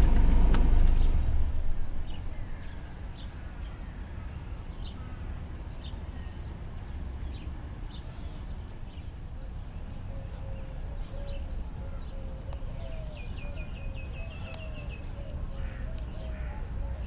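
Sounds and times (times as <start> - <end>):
low rumble: 0.0 - 3.5.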